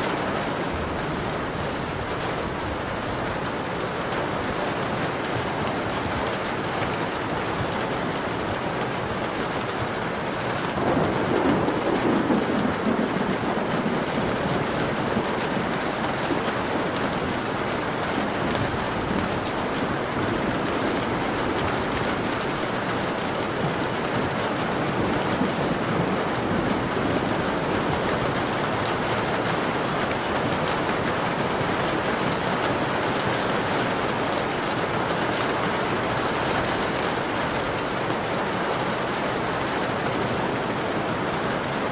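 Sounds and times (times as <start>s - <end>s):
rain pattering on a window: 0.0s - 41.9s
rumble of thunder: 10.8s - 16.8s.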